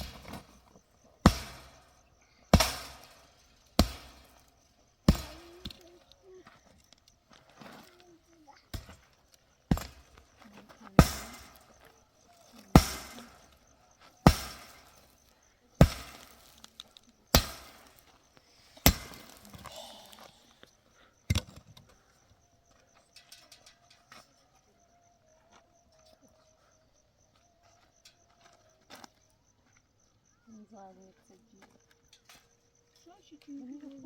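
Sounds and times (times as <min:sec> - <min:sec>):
faint steady tone: 0:00.0 - 0:34.0.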